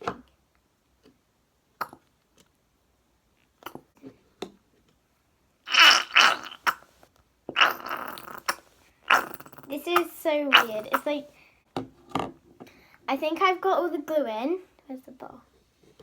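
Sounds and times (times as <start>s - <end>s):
glue bottle sputtering and squelching: 5.7s - 6.9s, 7.5s - 11.2s.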